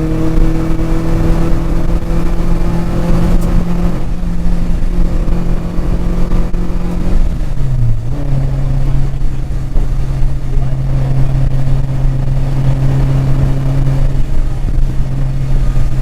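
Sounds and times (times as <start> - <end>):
car engine under load: 0.0 - 16.0
road and wind noise: 0.0 - 16.0.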